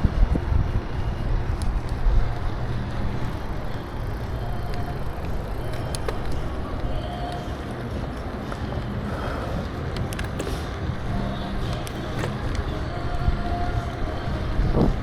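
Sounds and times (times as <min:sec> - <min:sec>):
bicycle road rumble: 0:00.0 - 0:15.0
wind rumbling on microphone: 0:00.0 - 0:15.0.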